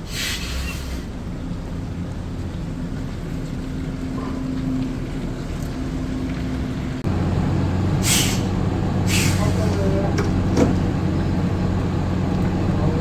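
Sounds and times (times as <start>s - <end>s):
heavy diesel engine running: 0.0s - 13.0s
short hiss: 8.0s - 8.5s, 9.1s - 9.8s.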